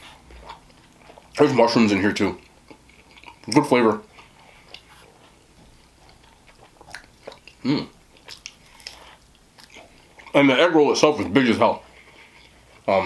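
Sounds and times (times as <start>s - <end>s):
man chewing food: 0.0s - 13.0s
man making short vocal sound: 7.6s - 7.9s.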